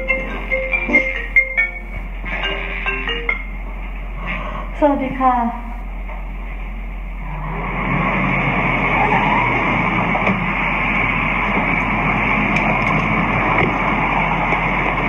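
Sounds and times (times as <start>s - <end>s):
car engine running: 7.1s - 15.0s.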